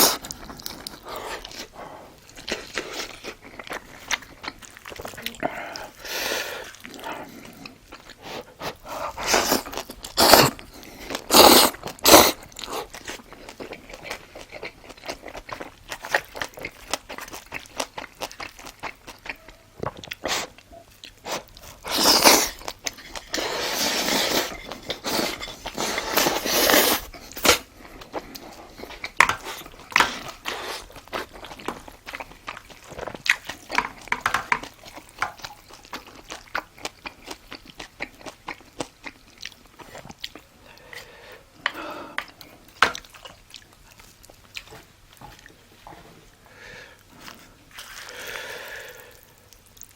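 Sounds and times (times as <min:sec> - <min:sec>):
person chewing and crunching food: 0:00.0 - 0:49.9.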